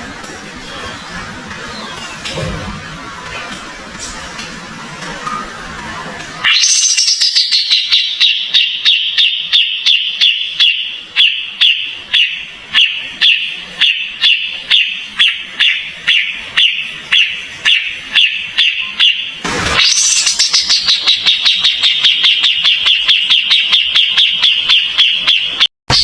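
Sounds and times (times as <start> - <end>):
songbird calling sharp notes: 6.4 - 25.7.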